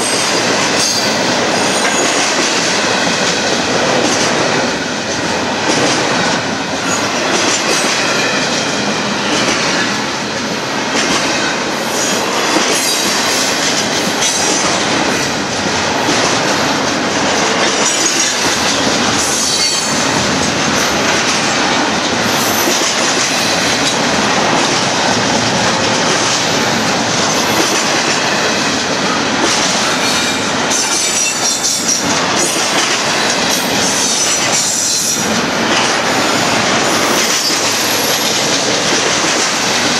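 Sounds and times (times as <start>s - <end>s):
train cars rumbling on rails: 0.0s - 39.9s.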